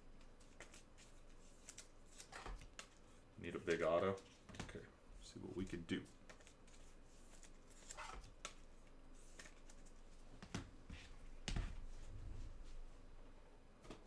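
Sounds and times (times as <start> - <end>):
cards tapping and clicking: 0.2 - 3.0, 3.6 - 4.9, 6.2 - 8.7, 9.3 - 10.7.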